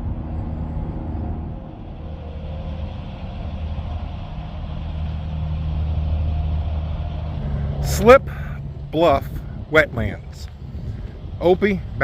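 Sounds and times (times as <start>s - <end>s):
truck engine rumble: 0.0s - 12.0s.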